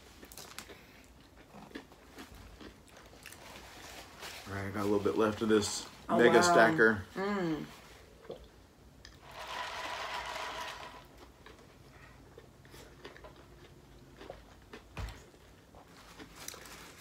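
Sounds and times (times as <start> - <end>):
people chewing food: 0.0 - 4.5, 7.8 - 9.3, 10.2 - 17.0.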